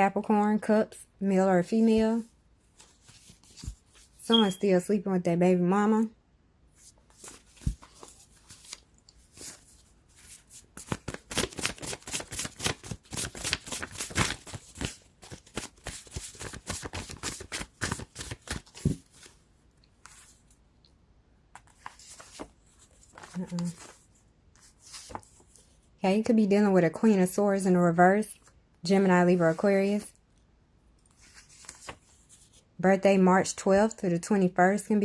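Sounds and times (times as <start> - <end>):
cards being shuffled: 6.8 - 19.3, 21.6 - 25.7.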